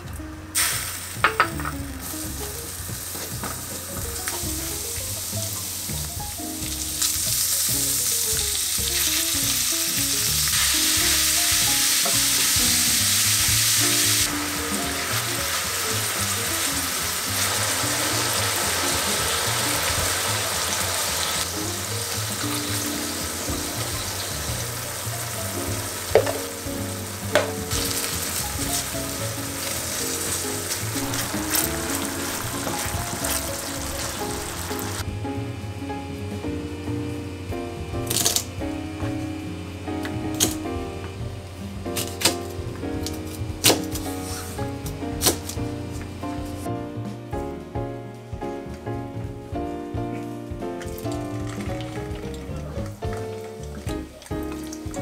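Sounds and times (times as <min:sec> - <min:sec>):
food sizzling in a frying pan: 0:00.6 - 0:35.1.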